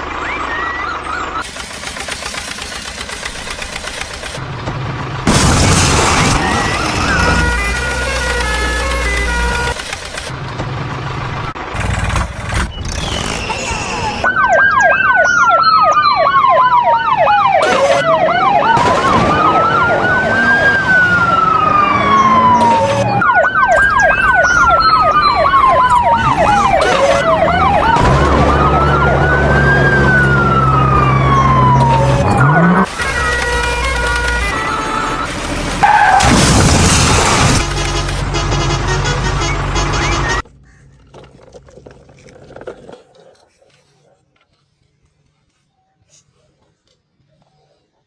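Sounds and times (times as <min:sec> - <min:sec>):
low vehicle engine hum: 0:00.0 - 0:15.2, 0:15.9 - 0:42.9
electronic siren wailing and yelping: 0:05.2 - 0:10.3, 0:13.3 - 0:37.7.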